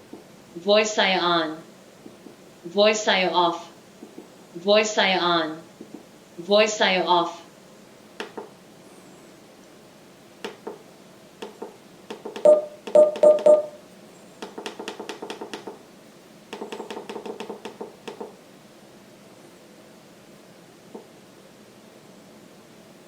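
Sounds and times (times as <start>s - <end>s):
electronic beep tones: 12.4s - 13.8s.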